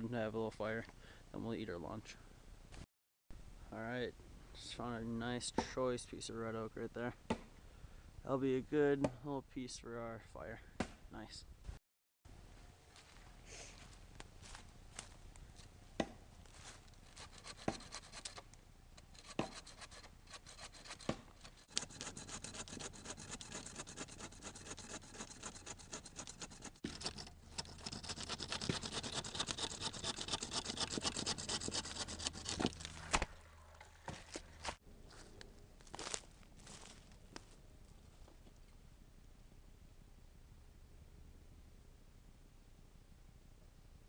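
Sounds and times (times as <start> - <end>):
hand saw cutting wood: 17.0 - 33.4.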